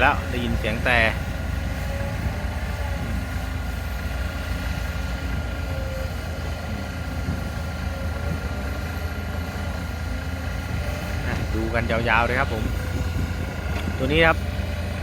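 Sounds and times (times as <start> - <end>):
heavy diesel machinery rumbling: 0.0 - 15.0.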